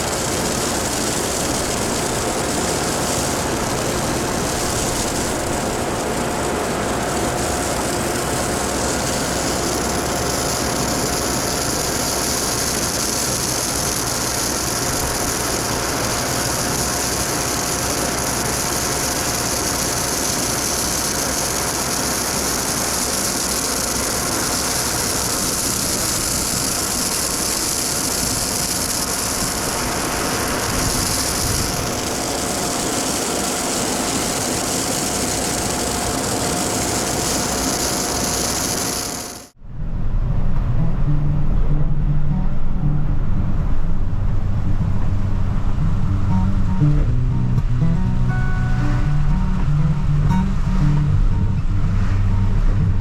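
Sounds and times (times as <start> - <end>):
strong hiss: 0.0 - 39.6
steady whine: 0.0 - 53.0
truck engine running: 0.0 - 53.0.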